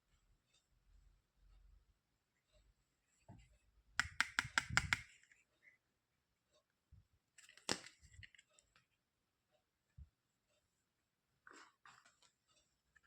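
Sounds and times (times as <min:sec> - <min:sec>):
sharp clicks: 0:04.0 - 0:05.1.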